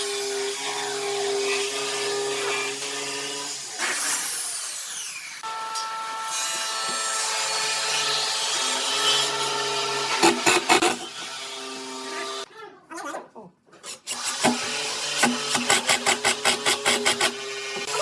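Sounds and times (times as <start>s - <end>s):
electric power tool working wood: 0.0s - 12.5s, 14.1s - 18.0s.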